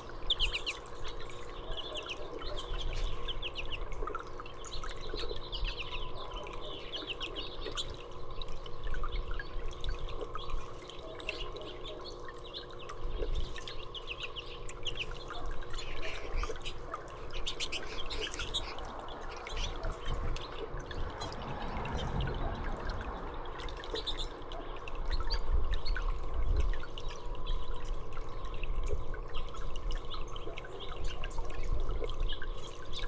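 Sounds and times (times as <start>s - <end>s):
songbirds chirping: 0.0s - 26.2s
faint steady hum: 0.0s - 33.0s
water dripping and trickling: 0.0s - 33.0s.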